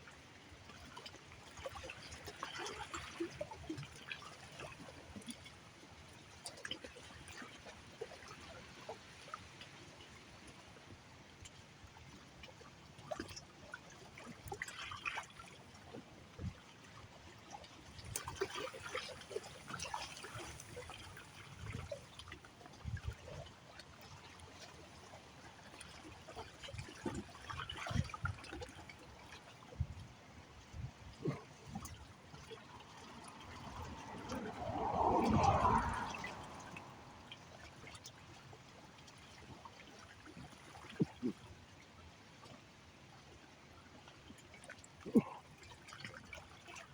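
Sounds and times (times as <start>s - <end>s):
small water splashes: 0.0s - 46.9s
water trickling: 13.0s - 41.5s, 44.0s - 46.9s.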